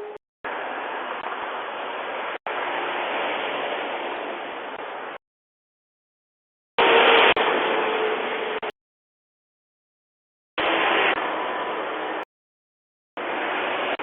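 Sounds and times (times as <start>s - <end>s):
road traffic rushing past: 0.0s - 5.2s, 6.8s - 8.7s, 10.6s - 12.3s, 13.2s - 14.0s.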